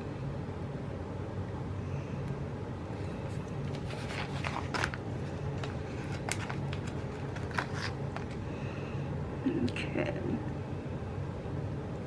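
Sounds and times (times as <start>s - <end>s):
steady low hum: 0.0s - 12.0s
paper crinkles: 3.2s - 8.4s
stickers rustling and tapping: 3.6s - 8.4s.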